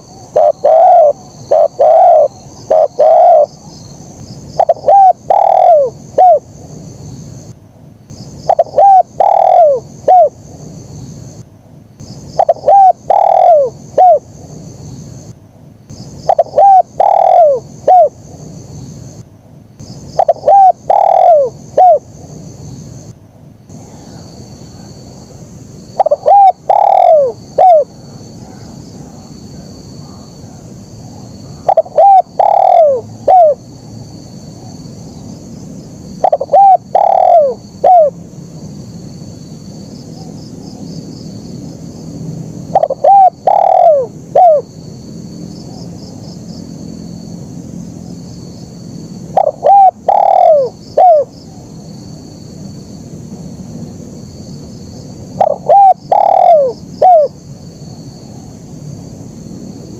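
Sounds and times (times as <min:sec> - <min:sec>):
dove cooing: 0:00.0 - 0:03.8, 0:04.6 - 0:06.5, 0:08.4 - 0:10.4, 0:12.4 - 0:14.3, 0:16.2 - 0:18.2, 0:20.1 - 0:22.1, 0:26.0 - 0:33.7, 0:36.2 - 0:38.2, 0:42.7 - 0:44.7, 0:49.3 - 0:51.6, 0:55.4 - 0:57.4
steady high hiss: 0:00.0 - 0:59.9.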